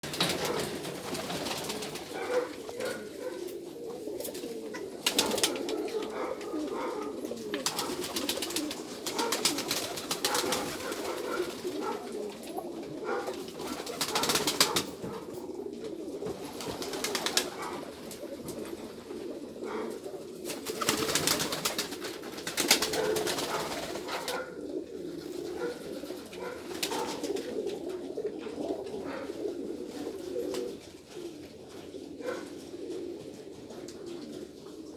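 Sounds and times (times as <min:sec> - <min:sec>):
pigeons cooing: 0:00.0 - 0:34.9.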